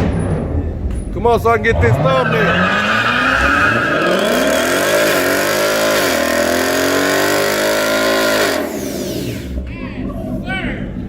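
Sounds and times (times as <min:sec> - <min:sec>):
car engine revving hard: 0:01.7 - 0:09.6
loud hiss: 0:08.2 - 0:09.6.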